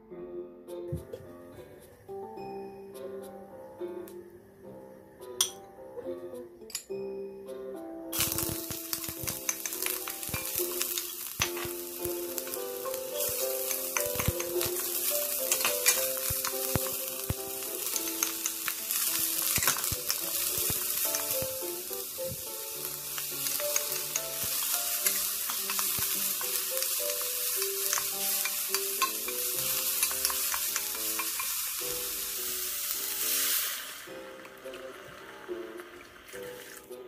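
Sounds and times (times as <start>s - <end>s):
soft background music: 0.0s - 37.0s
vegetables sizzling in oil: 8.2s - 36.6s.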